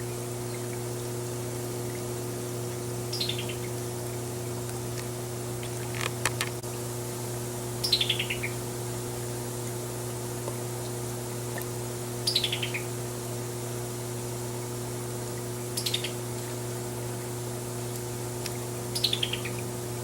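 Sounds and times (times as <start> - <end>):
steady low hum: 0.0 - 20.0
bird rattled call: 7.8 - 8.6.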